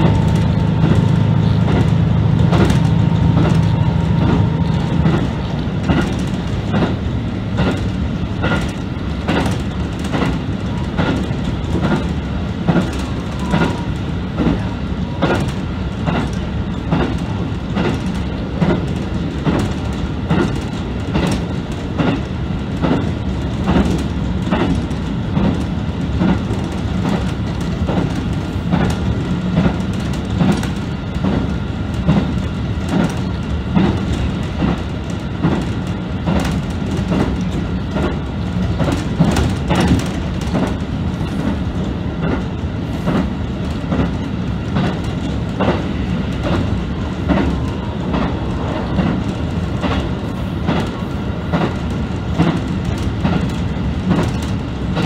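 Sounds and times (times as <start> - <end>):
diesel engine drone: 0.0 - 9.3
wheels clacking over rail joints: 0.0 - 55.0.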